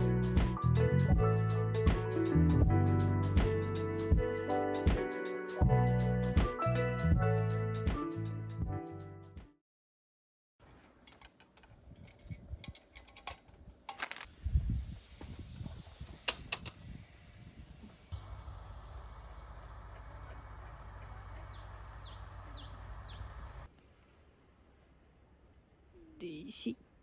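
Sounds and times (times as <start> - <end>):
small birds chirping: 18.0 - 23.7
low background hum: 18.2 - 26.2.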